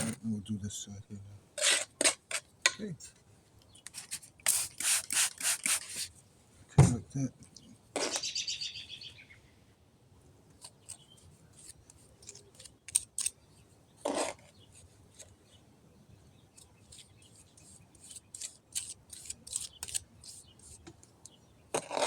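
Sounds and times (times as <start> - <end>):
hand tool scraping cement: 1.6 - 2.4, 18.0 - 20.8, 21.7 - 22.0.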